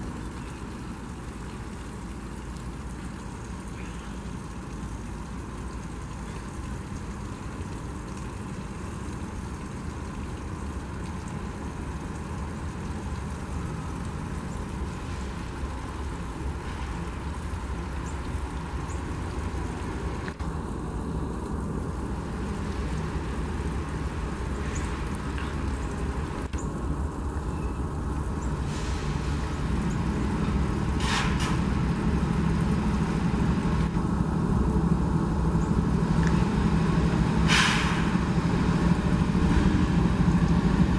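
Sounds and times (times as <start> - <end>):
diesel train engine rumble: 11.3 - 40.9
high hissing bursts: 37.4 - 38.2.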